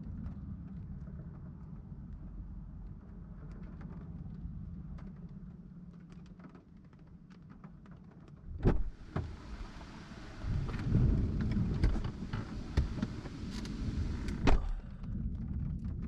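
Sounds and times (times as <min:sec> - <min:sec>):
low hum: 0:08.5 - 0:16.0
wind buffeting microphone: 0:08.5 - 0:16.0
wind-driven rain hissing: 0:08.6 - 0:16.0.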